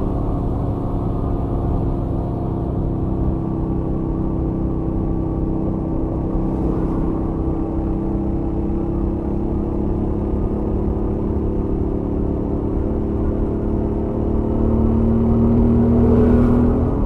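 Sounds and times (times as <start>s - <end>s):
motorcycle engine cruising: 14.1s - 17.0s.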